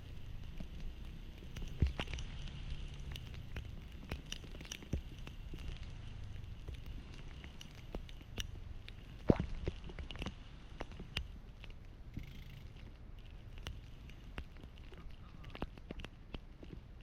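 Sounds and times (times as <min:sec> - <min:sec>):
low steady rumble: 0:00.0 - 0:17.0
rain pattering: 0:00.0 - 0:17.0
raindrops ticking close by: 0:00.0 - 0:17.0.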